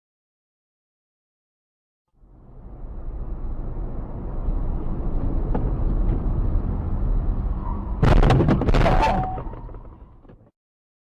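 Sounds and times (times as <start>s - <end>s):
car road and engine rumble: 2.1s - 10.5s
vehicle collision crash: 8.0s - 10.5s.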